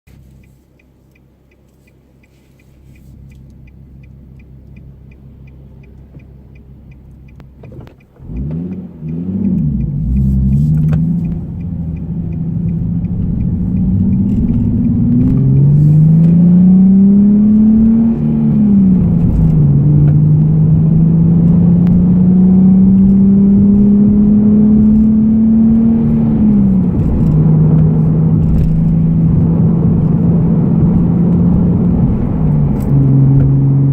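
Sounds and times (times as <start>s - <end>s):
quick regular ticking: 0.4s - 20.1s
car engine starting and revving: 2.3s - 33.9s.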